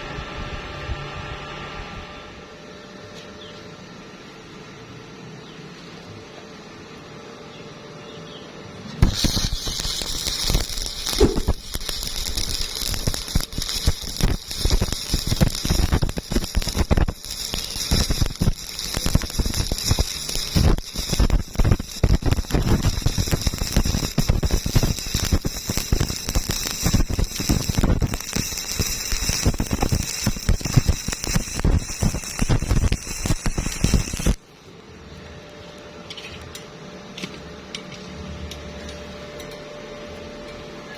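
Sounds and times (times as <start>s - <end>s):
welding arc crackling: 9.0s - 34.4s.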